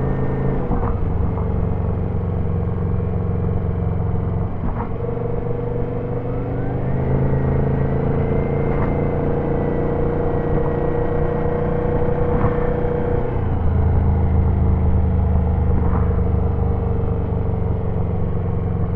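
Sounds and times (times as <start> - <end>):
turbo whine: 10.2 - 15.0.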